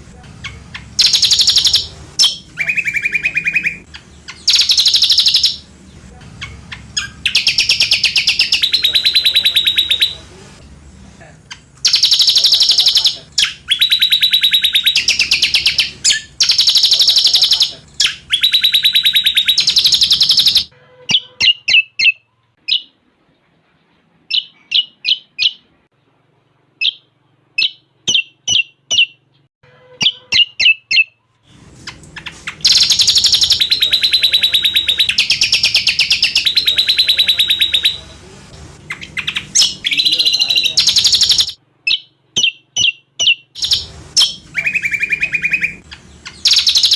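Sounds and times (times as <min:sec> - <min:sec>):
bird song with rattling trills: 0:00.4 - 0:10.1, 0:11.5 - 0:22.9, 0:31.9 - 0:38.0, 0:38.9 - 0:46.9.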